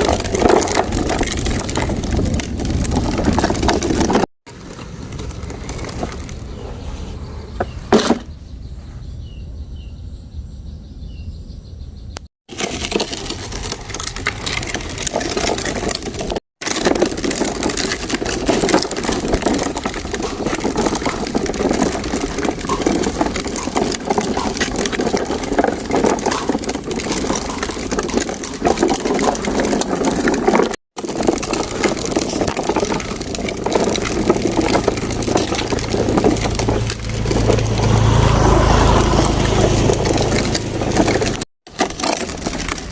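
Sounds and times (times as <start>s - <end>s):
toy truck rolling over sandy soil: 0.0s - 8.4s, 12.5s - 42.9s.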